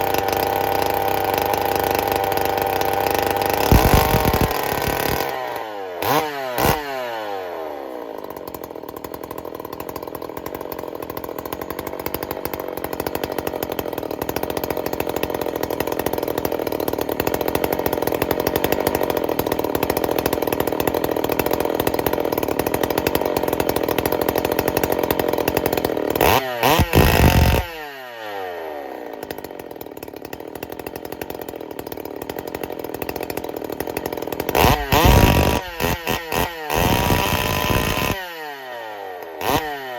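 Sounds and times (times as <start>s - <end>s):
chainsaw engine idling and revving: 0.0s - 39.9s.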